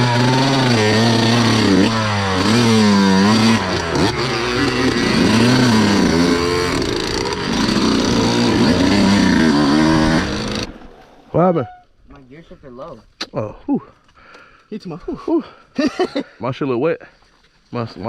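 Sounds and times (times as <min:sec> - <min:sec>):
off-road vehicle engine revving: 0:00.0 - 0:11.0.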